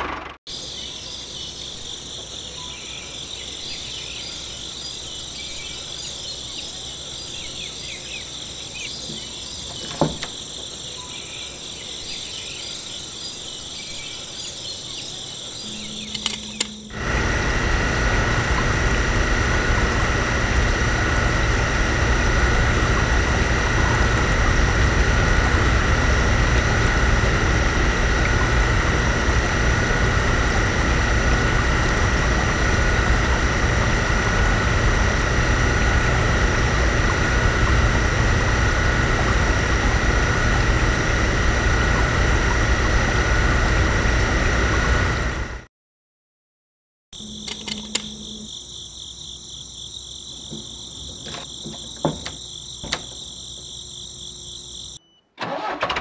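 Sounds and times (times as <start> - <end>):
crickets chirping: 0.5 - 17.3, 47.2 - 55.8
small electric pump whining: 15.1 - 45.7, 47.2 - 48.6
sharp click: 47.4 - 48.2.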